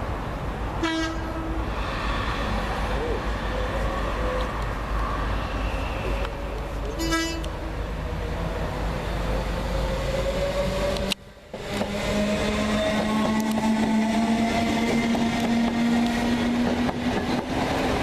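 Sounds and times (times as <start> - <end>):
train running through: 0.0 - 18.0
train horn toot: 0.8 - 1.6, 7.0 - 7.5.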